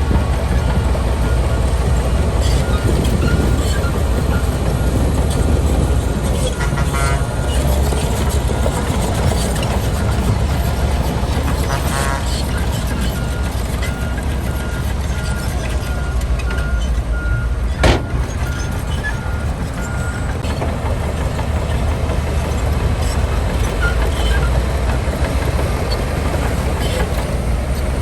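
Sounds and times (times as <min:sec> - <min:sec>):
diesel machinery rumble: 0:00.0 - 0:28.0.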